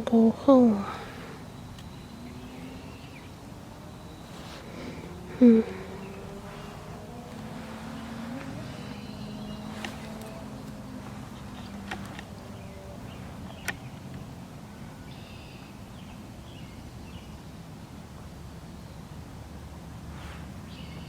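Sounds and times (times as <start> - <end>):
faint bird chirps: 0.7 - 14.0, 14.7 - 17.5
sharp clicks: 9.7 - 12.4, 13.4 - 14.3.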